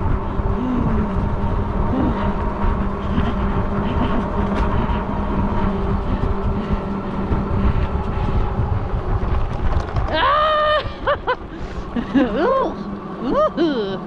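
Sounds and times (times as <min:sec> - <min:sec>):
tyre noise: 0:00.0 - 0:12.6
electric motor whine: 0:00.0 - 0:14.0
wind rumbling on microphone: 0:00.0 - 0:14.0.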